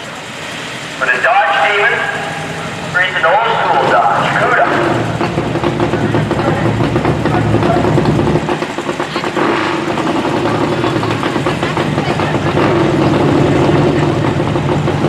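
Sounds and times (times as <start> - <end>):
car engines idling: 0.0 - 15.0.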